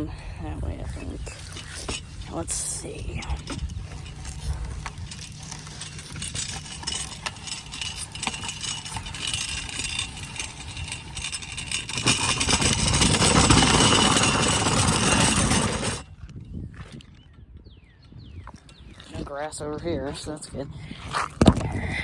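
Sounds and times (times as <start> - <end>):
small engine idling: 1.4 - 16.1.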